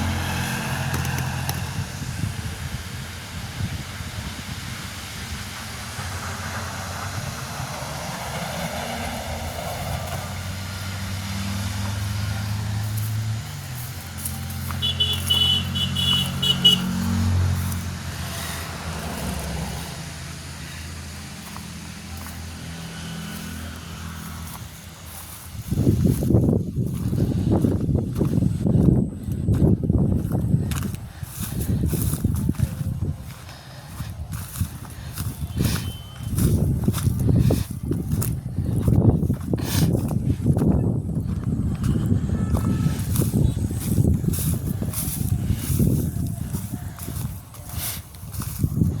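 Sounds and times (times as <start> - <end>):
engine running: 0.0 - 49.0.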